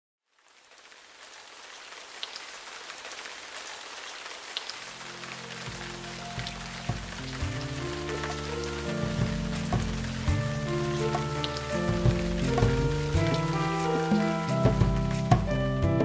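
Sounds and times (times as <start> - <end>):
rain falling: 0.3 - 16.0
low sustained music notes: 4.8 - 16.0.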